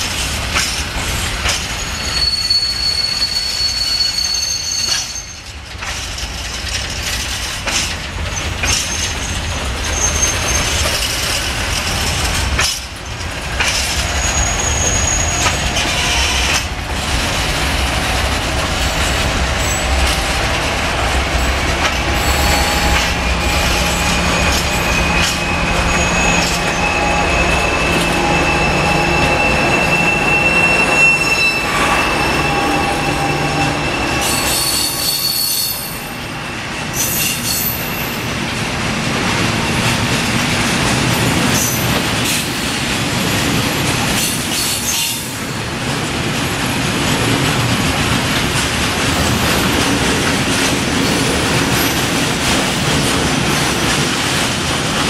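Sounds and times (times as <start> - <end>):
freight train rolling: 0.0 - 55.0
wheel flanges squealing: 1.4 - 7.8, 8.4 - 38.3
locomotive engine hum: 11.6 - 31.0.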